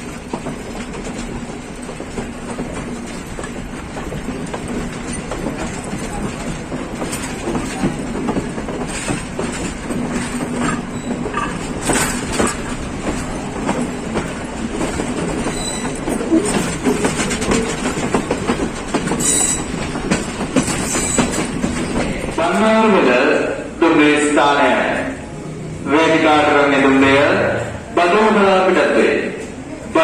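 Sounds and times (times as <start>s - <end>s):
sharp clacks of rails: 0.0s - 22.7s
train wheels rumbling on track: 0.0s - 30.0s.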